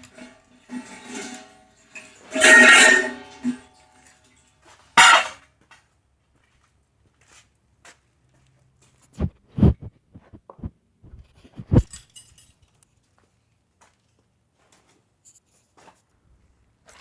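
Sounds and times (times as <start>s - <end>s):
heavy thumps of scrap metal: 0.2s - 3.7s, 5.0s - 5.4s
light metal clinks and knocks: 11.8s - 14.2s.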